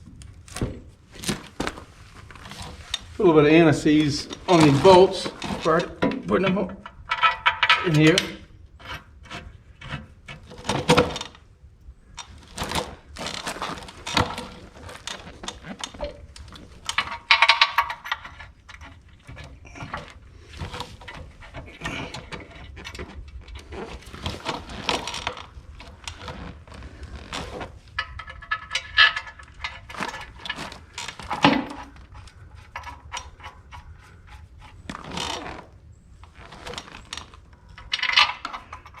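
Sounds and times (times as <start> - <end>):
metal tools clinking: 3.8 - 9.0, 12.2 - 23.1.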